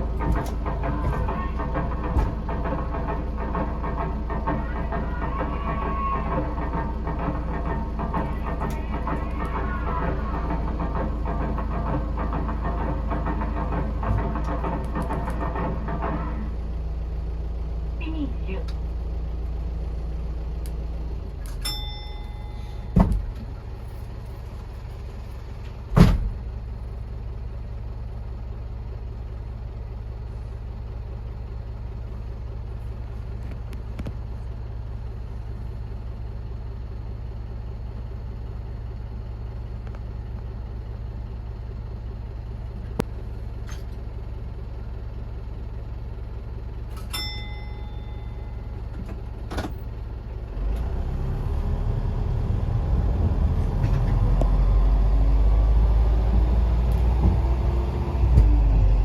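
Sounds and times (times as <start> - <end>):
diesel engine idling: 0.0 - 59.0
short chime: 21.6 - 22.9, 47.1 - 48.7
sharp thump: 25.9 - 26.4.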